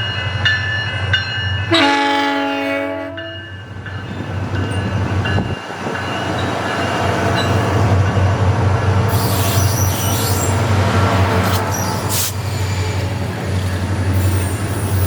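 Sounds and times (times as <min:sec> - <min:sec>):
train engine rumble: 0:00.0 - 0:15.0
train rolling noise: 0:00.0 - 0:15.0
wheels squealing on rails: 0:08.9 - 0:15.0.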